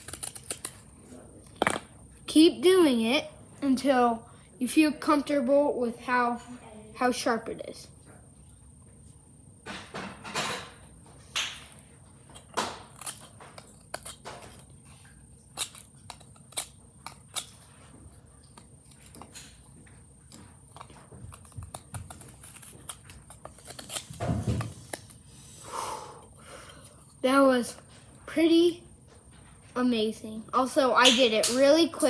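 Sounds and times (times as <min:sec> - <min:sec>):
knife blade shaving wood: 0:21.3 - 0:25.2.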